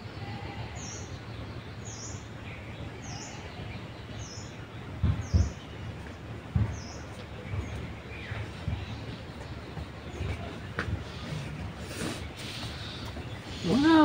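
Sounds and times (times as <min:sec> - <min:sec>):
bird chirping: 0:00.0 - 0:14.0
low thumps: 0:04.9 - 0:11.8.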